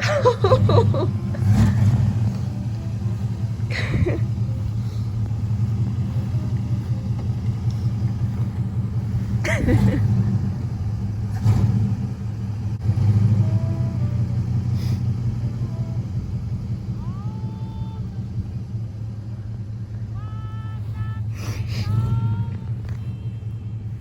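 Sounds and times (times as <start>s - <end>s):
pickup truck engine rumbling: 0.0s - 24.0s.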